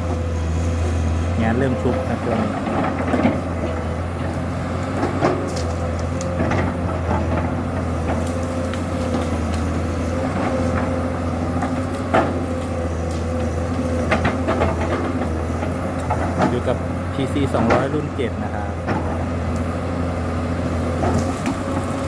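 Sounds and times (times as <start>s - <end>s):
excavator diesel engine running: 0.0s - 22.0s
sharp cracks and knocks: 4.3s - 16.8s, 20.8s - 22.0s.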